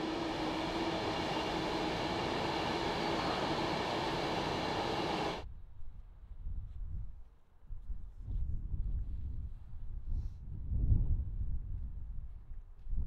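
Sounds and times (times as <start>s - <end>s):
train rumbling past: 0.0s - 5.4s.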